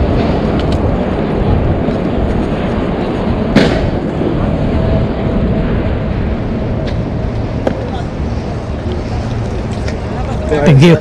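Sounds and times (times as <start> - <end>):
wind and road noise: 0.0 - 11.0
sharp crack: 3.5 - 4.3.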